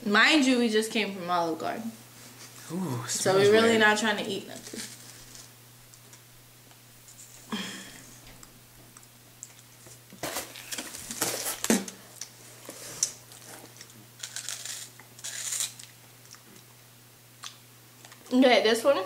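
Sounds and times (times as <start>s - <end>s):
plastic packaging crinkling: 10.2s - 16.0s.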